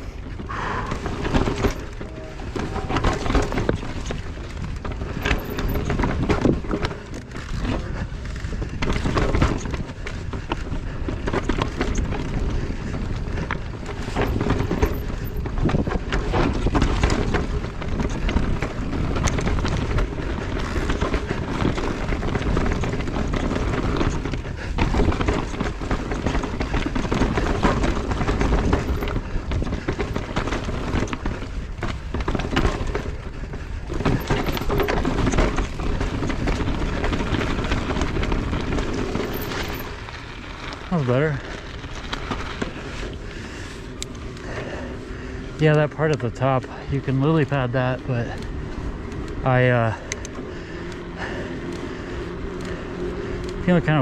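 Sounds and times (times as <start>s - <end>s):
bike rattling: 0.0s - 54.0s
tyres rumbling over rocks: 0.0s - 54.0s.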